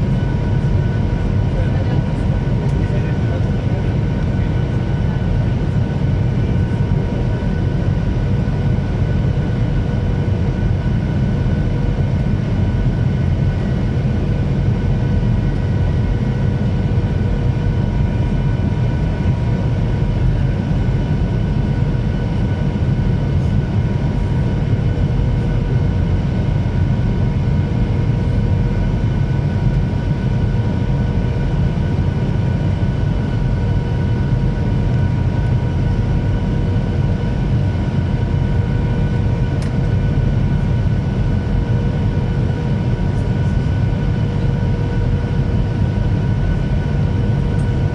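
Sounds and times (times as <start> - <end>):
jet engines rumbling: 0.0 - 47.9.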